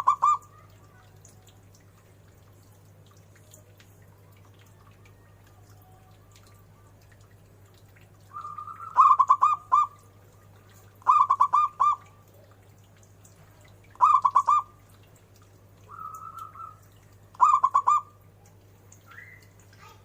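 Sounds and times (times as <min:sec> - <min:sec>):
dove cooing: 0:00.0 - 0:00.6, 0:08.3 - 0:10.0, 0:11.0 - 0:12.1, 0:14.0 - 0:14.7, 0:17.4 - 0:18.1
faint steady hum: 0:00.0 - 0:20.0.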